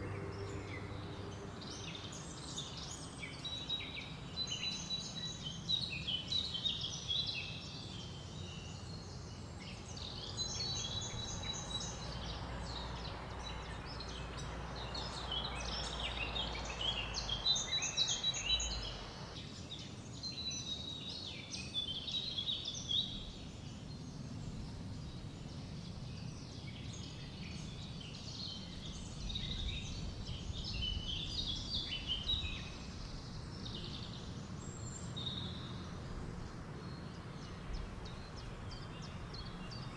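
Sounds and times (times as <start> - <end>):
low wind rumble: 0.0 - 3.0, 10.0 - 19.4, 23.1 - 39.9
songbirds chirping and trilling: 0.0 - 39.9
wind rushing through leaves: 9.9 - 20.2.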